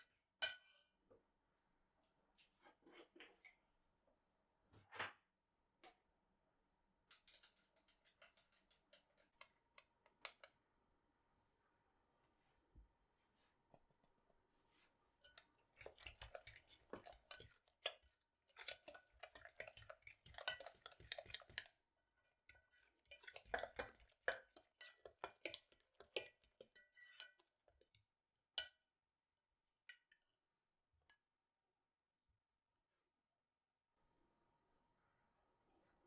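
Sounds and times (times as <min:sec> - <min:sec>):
dishes and utensils clinking: 0:15.3 - 0:18.0, 0:18.6 - 0:21.7, 0:22.6 - 0:27.5.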